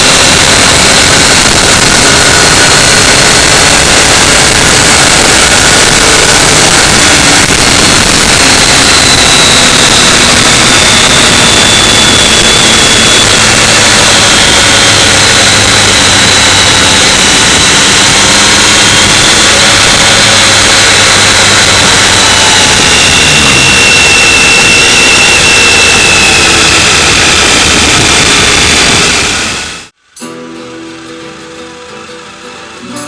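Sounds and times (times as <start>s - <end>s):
wind rush on microphone: 0.0s - 29.9s
motorcycle engine drone: 0.0s - 33.0s.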